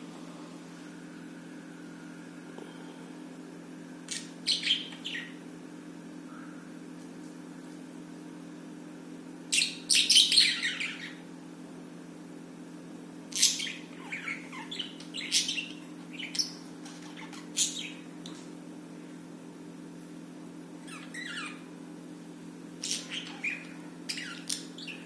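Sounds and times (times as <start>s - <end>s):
steady low hum: 0.0s - 25.0s
budgerigars chirping: 4.1s - 5.4s, 9.5s - 11.2s, 13.3s - 18.0s, 20.8s - 21.7s, 22.8s - 25.0s.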